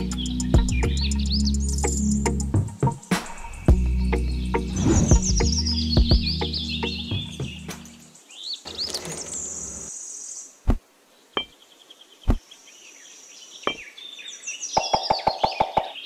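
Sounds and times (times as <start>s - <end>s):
birds chirping: 0.0s - 10.6s, 11.2s - 16.0s
clay bricks rustling: 8.7s - 9.9s.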